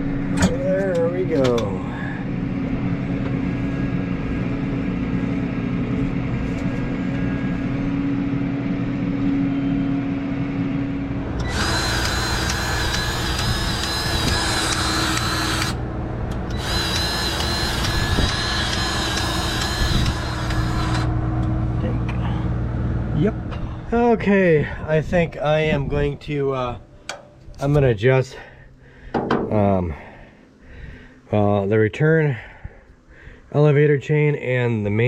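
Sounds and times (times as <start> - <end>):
mechanical hum: 0.0 - 35.0
power tool whining: 11.3 - 21.5.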